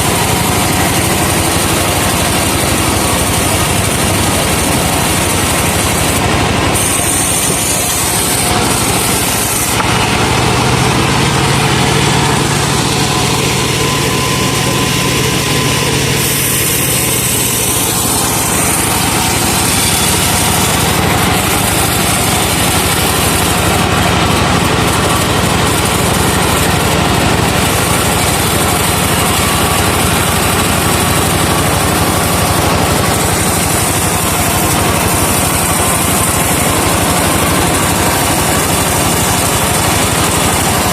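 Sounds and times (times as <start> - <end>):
truck engine running: 0.0 - 40.9.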